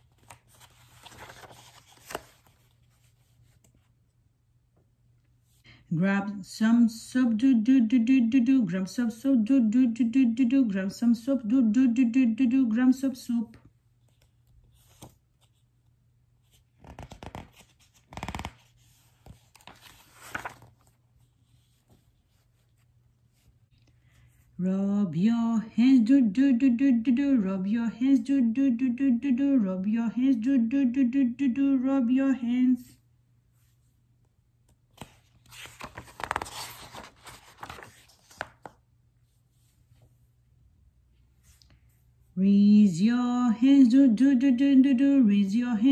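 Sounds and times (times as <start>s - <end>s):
book pages rustling and turning: 0.0s - 4.0s, 13.9s - 23.6s, 34.7s - 40.3s.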